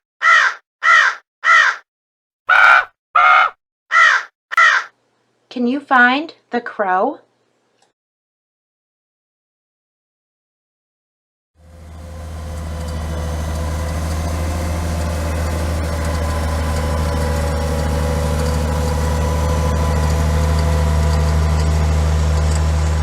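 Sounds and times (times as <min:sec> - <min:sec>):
tractor engine idling: 0:11.6 - 0:23.0.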